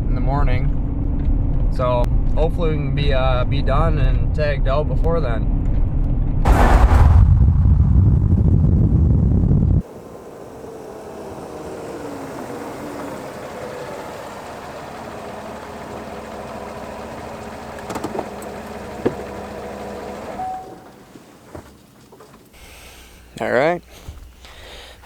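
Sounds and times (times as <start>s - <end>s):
pickup truck engine running: 8.2s - 22.0s.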